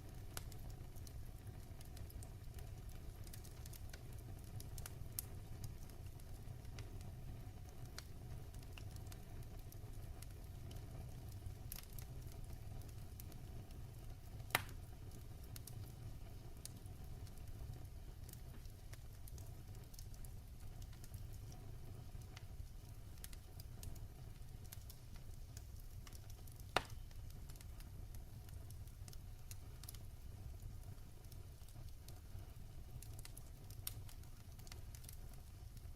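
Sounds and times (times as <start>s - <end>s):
fire crackling in fireplace: 0.0s - 35.9s
sharp pops from fire: 0.1s - 7.0s, 7.6s - 35.9s.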